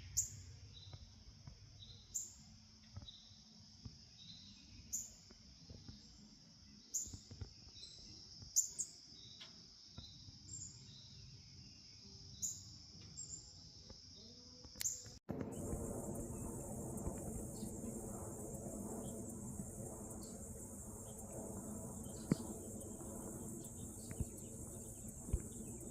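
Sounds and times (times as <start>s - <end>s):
insects trilling: 11.8s - 25.9s
low hum: 15.3s - 25.9s.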